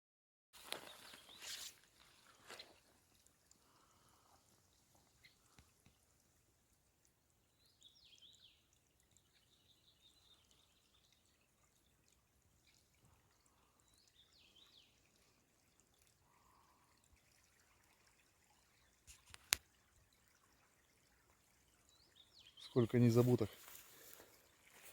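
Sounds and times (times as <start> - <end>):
stream trickling: 0.6 - 24.9
bird singing: 7.5 - 11.0, 21.9 - 23.5.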